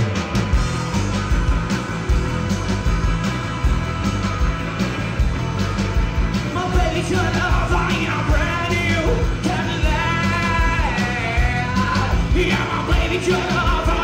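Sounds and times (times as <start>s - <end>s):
drum beat: 0.0s - 14.0s
rock and roll band playing: 0.0s - 14.0s
person singing: 6.5s - 14.0s.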